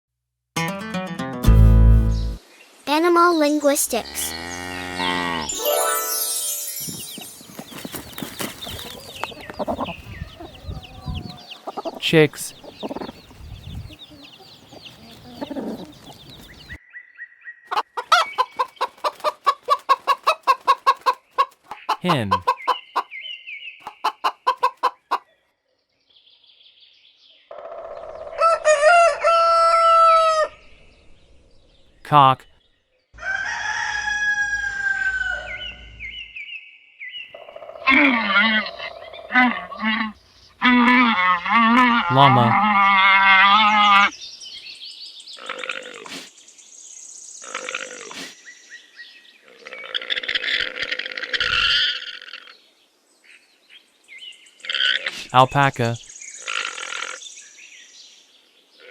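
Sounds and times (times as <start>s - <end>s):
hen clucking: 7.6s - 16.8s, 17.7s - 23.2s, 23.8s - 25.3s
rooster crowing: 28.3s - 30.6s, 33.2s - 35.8s
llama calling: 37.9s - 44.1s.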